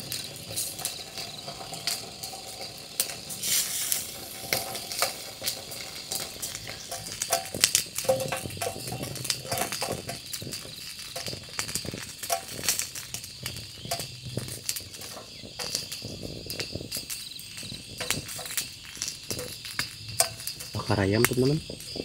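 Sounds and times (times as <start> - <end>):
insects chirring: 0.0 - 22.0
sharp crackles and ticks: 0.0 - 22.0.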